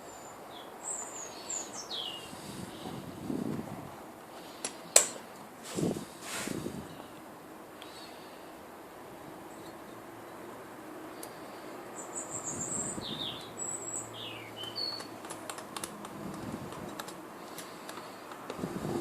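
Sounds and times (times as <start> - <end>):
birds chirping: 0.0 - 3.2, 11.1 - 15.2.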